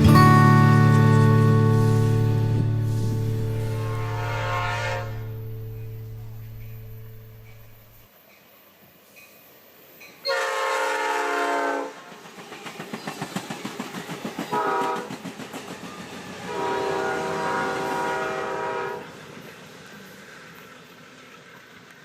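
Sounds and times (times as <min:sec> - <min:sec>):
train wheels clattering over rail joints: 0:00.0 - 0:07.9
train horn blasts: 0:00.0 - 0:08.0, 0:10.2 - 0:12.1, 0:14.5 - 0:15.1, 0:16.5 - 0:19.2.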